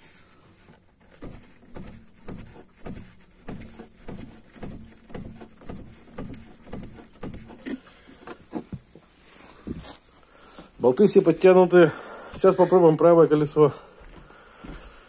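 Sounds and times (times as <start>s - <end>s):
suspension strut knocking: 1.1s - 7.8s.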